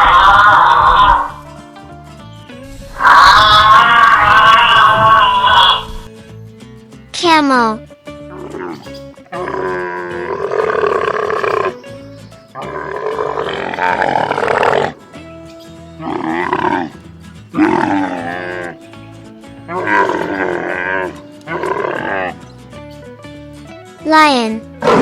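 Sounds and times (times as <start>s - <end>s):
camel groaning calls: 0.0s - 1.5s, 2.9s - 6.1s, 8.3s - 15.0s, 16.0s - 19.0s, 19.6s - 22.5s
background music: 0.0s - 25.0s.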